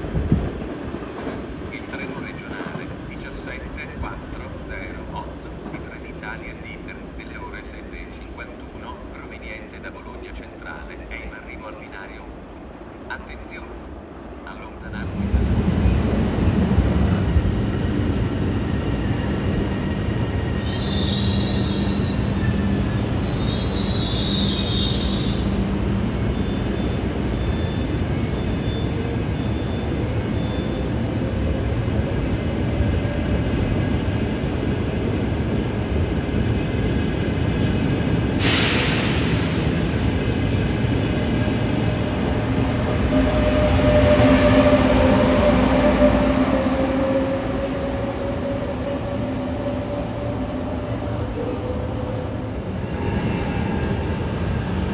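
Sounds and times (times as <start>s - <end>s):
train wheels rumbling on rails: 14.8s - 54.9s
high wheel squeal: 18.1s - 31.0s.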